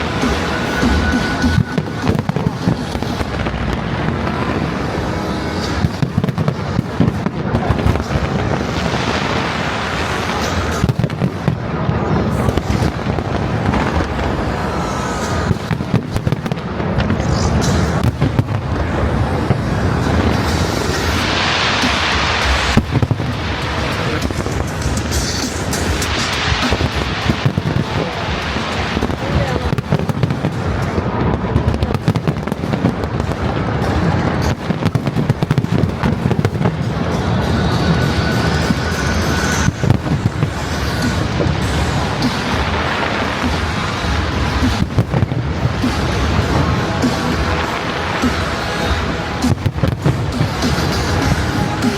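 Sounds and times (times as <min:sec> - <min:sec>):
rumble of firework bursts: 0:00.0 - 0:51.9
crackling firework pops: 0:20.3 - 0:37.3.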